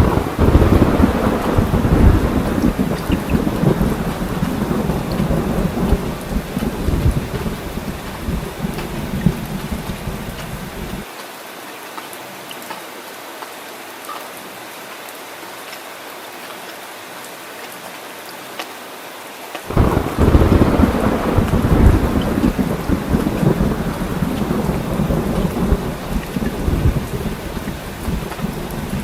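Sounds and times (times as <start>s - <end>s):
rolling thunder: 0.0s - 11.0s, 19.7s - 29.0s
rain falling: 0.0s - 29.0s.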